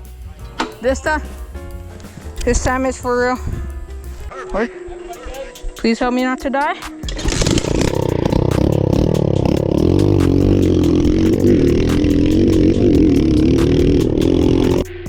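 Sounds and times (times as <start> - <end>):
dirt bike engine revving: 7.0 - 14.9
rapid clatter: 7.1 - 14.9.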